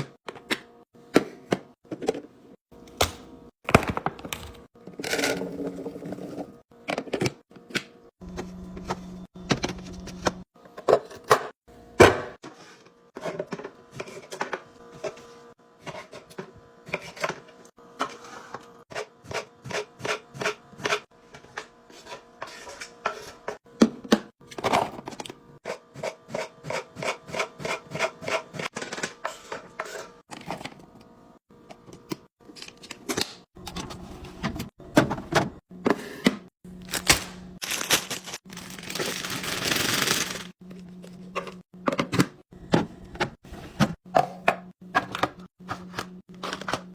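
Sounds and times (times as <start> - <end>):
containers and packaging being handled: 28.0 - 46.9.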